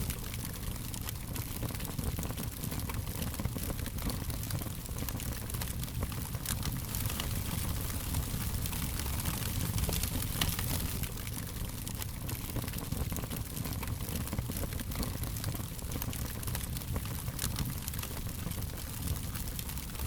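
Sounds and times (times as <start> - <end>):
fire pops and snaps: 0.0 - 20.0
wood fire crackling: 0.0 - 20.0.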